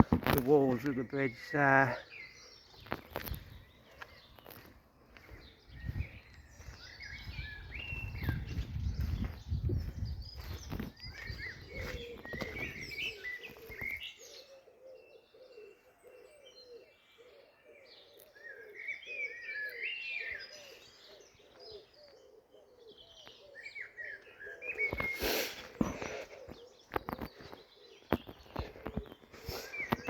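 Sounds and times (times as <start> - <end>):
songbirds singing: 0.0 - 30.0
pigeon cooing: 11.1 - 30.0.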